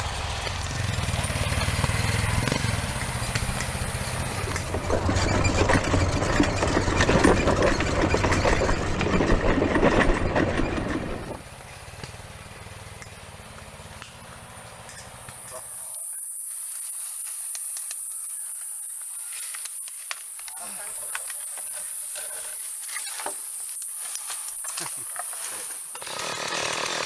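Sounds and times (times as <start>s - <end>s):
vehicle engine humming: 0.0s - 18.1s.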